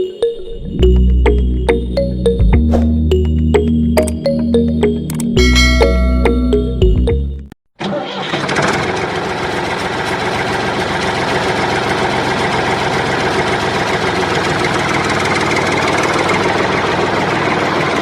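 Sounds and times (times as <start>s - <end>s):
tractor engine idling: 8.8s - 18.0s.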